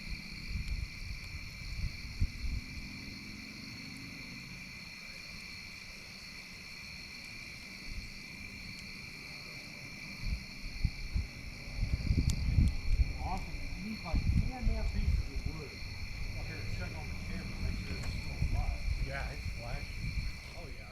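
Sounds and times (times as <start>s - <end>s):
insect chirring: 0.0s - 20.9s
low bumps: 10.2s - 20.9s.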